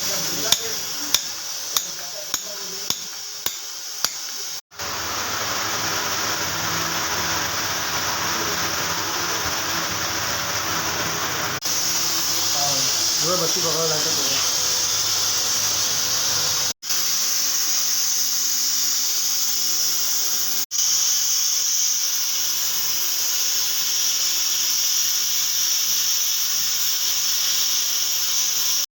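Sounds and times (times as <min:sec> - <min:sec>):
gas torch flame hissing: 0:00.0 - 0:04.6, 0:11.6 - 0:28.9.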